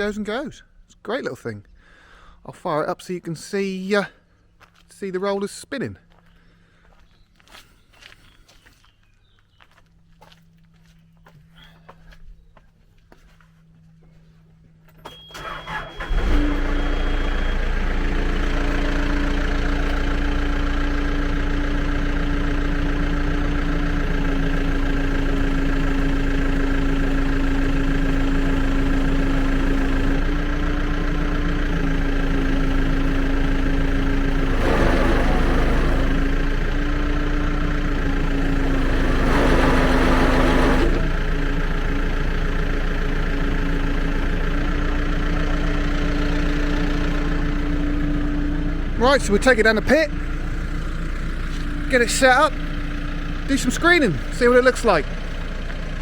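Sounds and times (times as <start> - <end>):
diesel engine running: 13.0 - 56.0
starter cranking engine: 15.1 - 24.5, 32.8 - 36.9, 37.5 - 41.4
hydraulic rollers straining: 34.3 - 36.4, 38.6 - 41.2.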